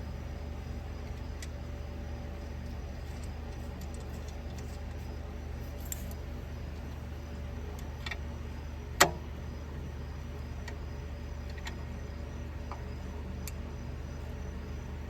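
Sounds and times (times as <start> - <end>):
steady low hum: 0.0 - 15.0
light metal clicks of tools: 5.7 - 6.2.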